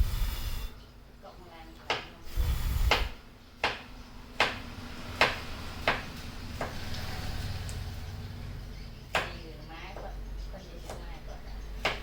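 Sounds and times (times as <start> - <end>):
low steady hum: 0.0 - 1.6.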